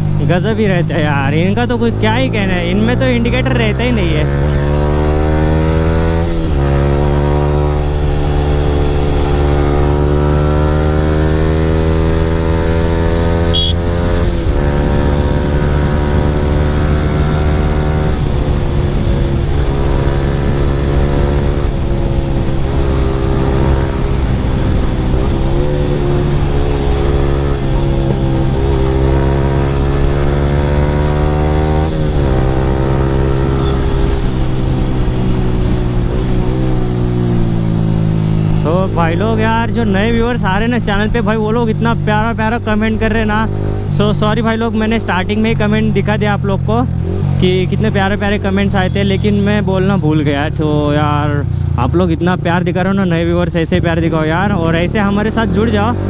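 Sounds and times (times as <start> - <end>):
motorcycle engine: 0.0 - 56.0.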